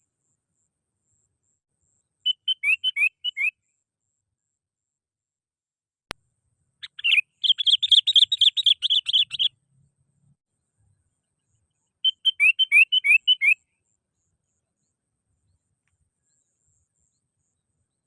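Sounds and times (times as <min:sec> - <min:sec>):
bird chattering call: 0:06.8 - 0:09.5.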